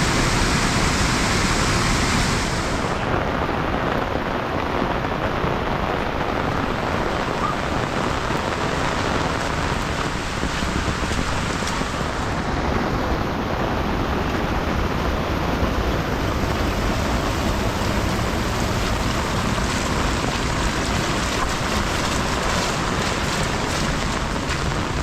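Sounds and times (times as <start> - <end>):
heavy rain hissing: 0.0 - 25.0
raindrop ticks: 17.9 - 25.0.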